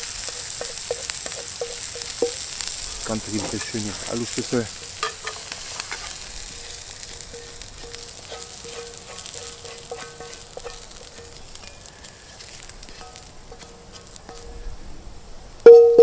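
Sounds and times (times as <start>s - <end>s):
food sizzling in a frying pan: 0.0s - 16.0s
metal utensil clinking on cookware: 0.2s - 12.1s.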